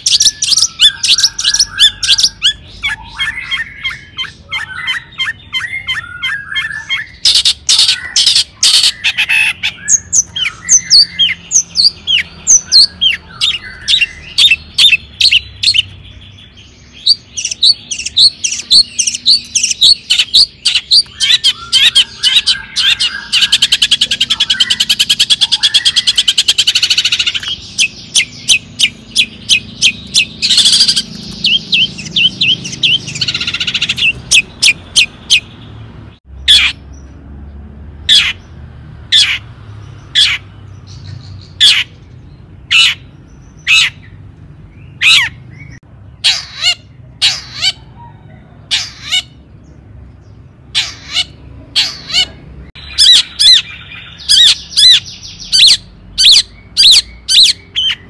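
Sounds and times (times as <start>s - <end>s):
shrike calling: 0.0s - 35.6s, 50.6s - 58.0s.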